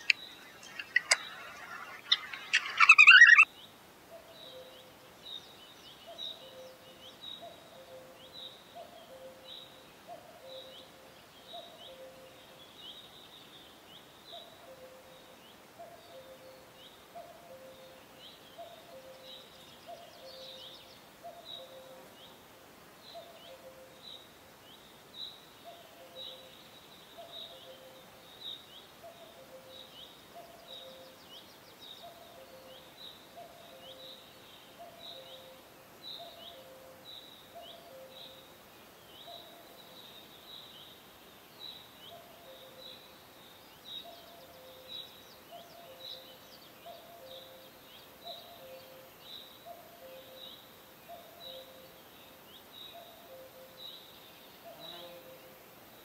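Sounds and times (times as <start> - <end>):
high bird chirps: 0.0 - 3.5.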